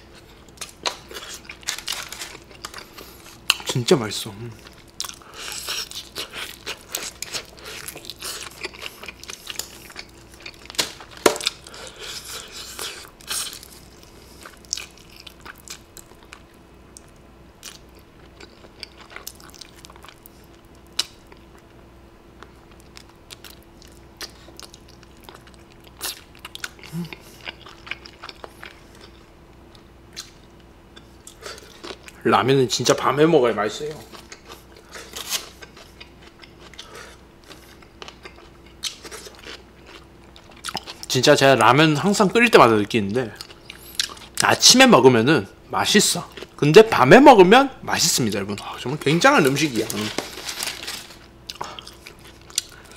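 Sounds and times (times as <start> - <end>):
faint steady hum: 0.0 - 52.9
crunchy biting and chewing: 0.1 - 3.7, 4.6 - 21.6, 22.7 - 29.3, 34.1 - 41.1.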